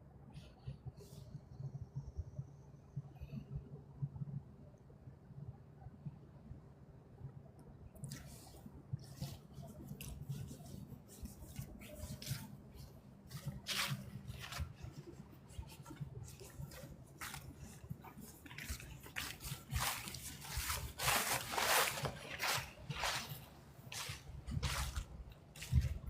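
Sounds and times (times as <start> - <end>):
rustling and crackling: 8.0 - 26.0.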